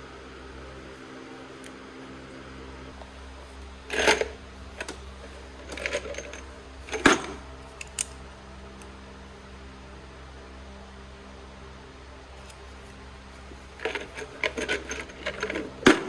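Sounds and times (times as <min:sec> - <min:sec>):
metal tools clinking and rattling: 0:03.0 - 0:08.2, 0:12.4 - 0:16.0.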